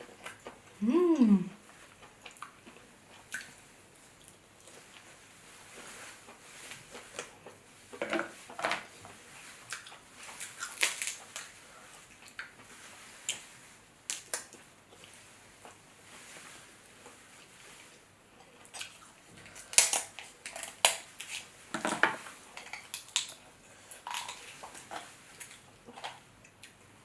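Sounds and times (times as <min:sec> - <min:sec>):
crunching and chewing: 0:09.4 - 0:13.5, 0:18.4 - 0:21.5, 0:22.2 - 0:26.9
crab shells cracking: 0:10.6 - 0:11.3, 0:19.6 - 0:21.4, 0:22.6 - 0:23.4.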